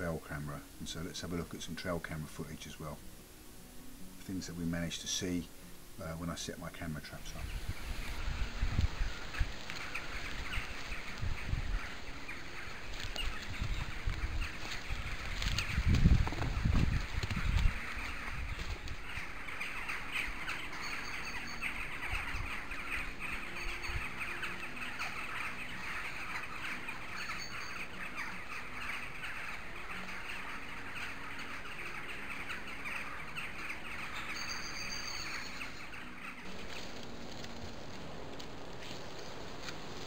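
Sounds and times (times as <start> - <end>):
outdoor background hiss: 0.0 - 40.0
whistled bird calls: 17.7 - 36.5.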